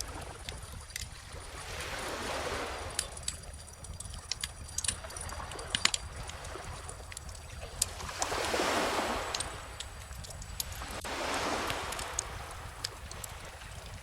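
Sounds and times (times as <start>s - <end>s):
wood fire crackling: 2.9s - 14.0s
ocean wave washing in: 7.8s - 14.0s.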